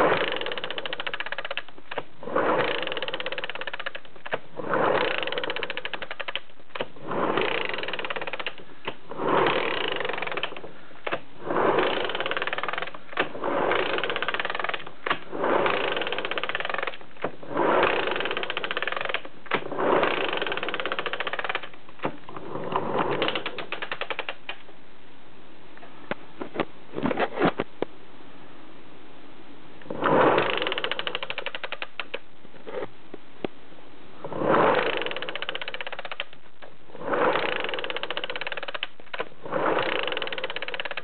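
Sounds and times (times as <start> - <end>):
motorcycle engine cranking: 0.0 - 21.8, 22.8 - 24.6, 30.0 - 32.2, 34.5 - 36.4, 37.1 - 41.0
fine clicking: 0.0 - 22.1, 22.8 - 24.6, 30.0 - 32.2, 34.4 - 41.0.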